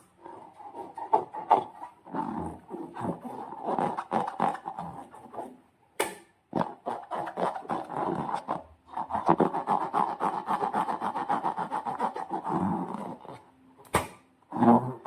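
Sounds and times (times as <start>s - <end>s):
sharp snap: 13.8s - 14.3s.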